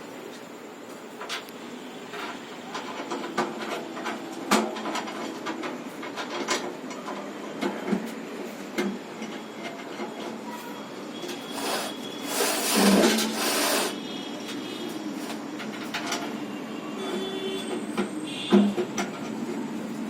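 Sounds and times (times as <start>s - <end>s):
knocks and clicks from tools: 2.2s - 10.1s, 17.6s - 19.4s.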